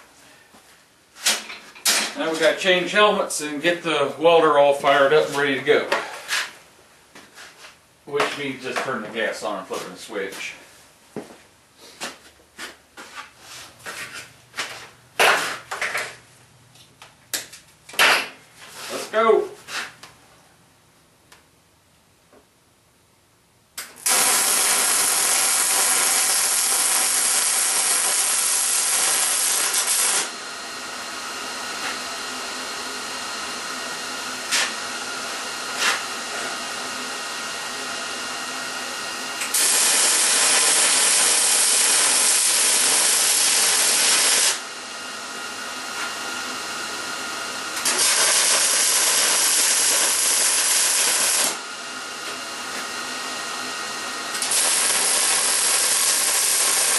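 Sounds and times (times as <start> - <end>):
welder arc buzzing: 23.8 - 56.9.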